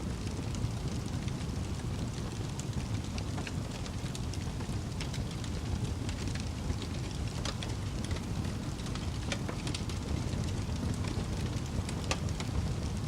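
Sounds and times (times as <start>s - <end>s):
fire crackling and popping: 0.0s - 13.0s
wood fire roaring: 0.0s - 13.0s.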